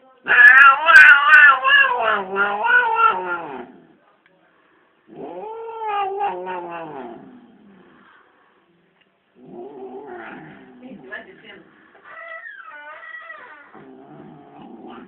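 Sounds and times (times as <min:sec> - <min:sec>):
cat yowling: 0:00.3 - 0:03.7, 0:05.2 - 0:07.1, 0:12.0 - 0:13.9.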